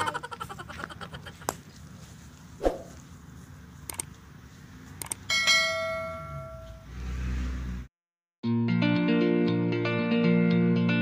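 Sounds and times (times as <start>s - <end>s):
bell-like ding: 5.3s - 6.9s.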